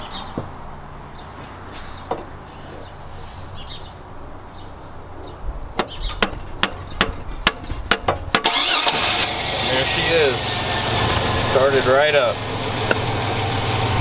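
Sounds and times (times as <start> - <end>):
sharp metal taps: 5.8 - 8.5.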